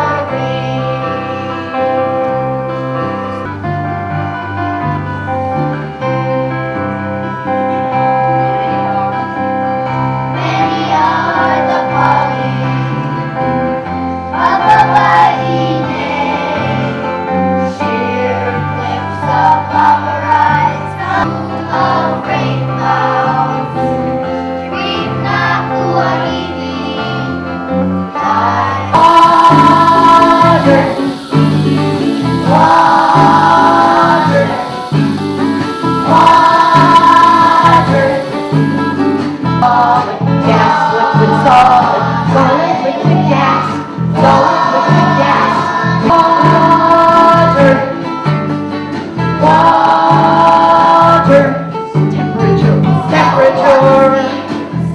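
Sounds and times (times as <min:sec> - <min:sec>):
children singing: 0:00.0 - 0:01.9, 0:10.4 - 0:13.1, 0:14.4 - 0:27.4, 0:28.2 - 0:48.1, 0:49.4 - 0:51.6, 0:52.4 - 0:54.9
instrumental accompaniment: 0:00.0 - 0:54.9.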